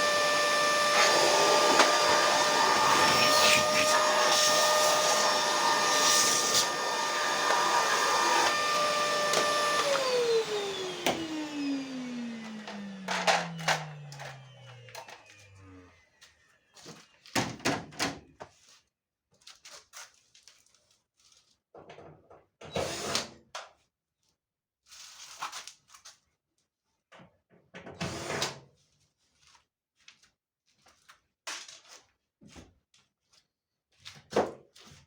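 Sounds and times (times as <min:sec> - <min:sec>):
motor winding down: 0:00.0 - 0:16.1
metal and plastic parts clunking: 0:12.5 - 0:15.1.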